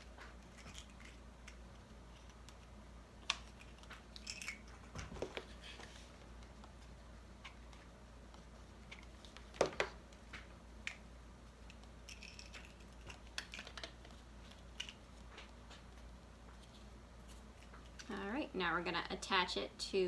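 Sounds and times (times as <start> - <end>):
paper craft materials clicking and rustling: 7.4 - 18.2.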